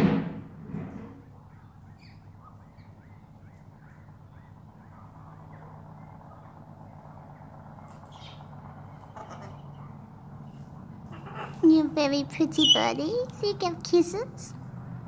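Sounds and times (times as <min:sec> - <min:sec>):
low steady hum: 0:00.0 - 0:15.0
faint bird chirps: 0:01.5 - 0:11.6, 0:12.4 - 0:13.2
bird calls: 0:01.5 - 0:13.7.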